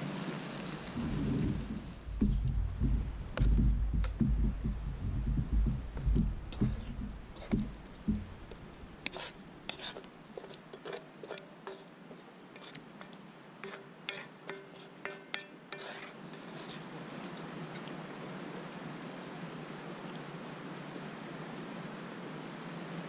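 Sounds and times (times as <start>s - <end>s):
low thumps: 1.0s - 9.1s.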